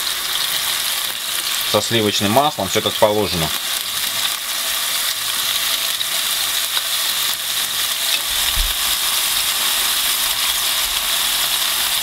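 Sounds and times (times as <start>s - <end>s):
cutlets sizzling in a pan: 0.0s - 12.0s
low thump: 8.5s - 8.8s.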